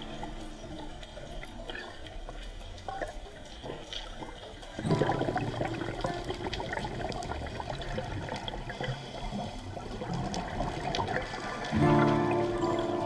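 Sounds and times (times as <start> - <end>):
small ticks and crackles: 0.0 - 13.0
water rushing and splashing: 4.8 - 13.0.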